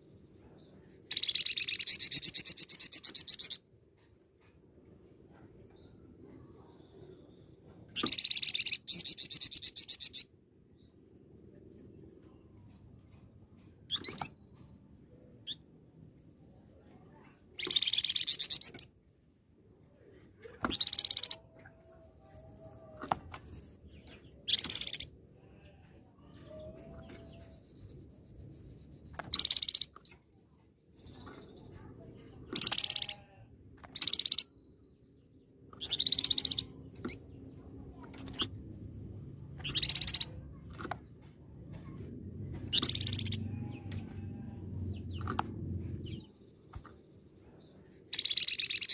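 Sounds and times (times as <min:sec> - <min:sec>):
songbird trilling: 0:17.6 - 0:18.9, 0:20.7 - 0:21.6, 0:24.5 - 0:25.1, 0:29.3 - 0:30.2, 0:32.6 - 0:33.3, 0:34.0 - 0:34.5, 0:35.8 - 0:37.2, 0:39.6 - 0:40.6, 0:42.7 - 0:43.5, 0:48.1 - 0:48.9.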